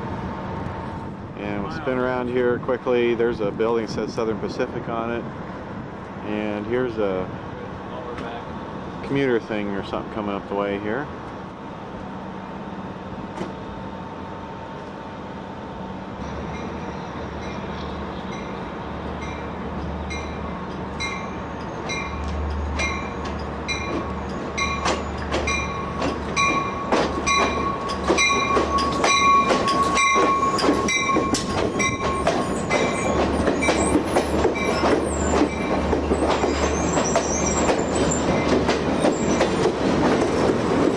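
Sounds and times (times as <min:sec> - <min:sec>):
train engine hum: 0:00.0 - 0:40.9
wheel clicks over rail joints: 0:21.6 - 0:40.9.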